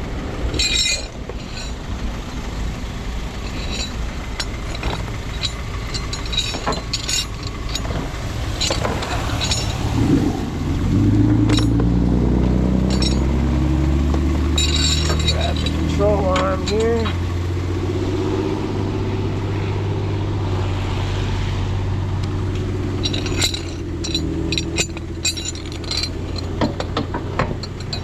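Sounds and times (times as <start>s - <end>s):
deep steady hum: 0.0s - 28.0s
truck engine idling: 0.0s - 28.0s
clicks and knocks: 23.0s - 28.0s.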